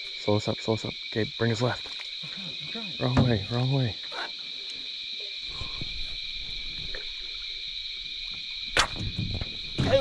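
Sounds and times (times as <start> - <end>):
night insects chorus: 0.0 - 10.0
rustling and knocking from boat: 8.3 - 10.0.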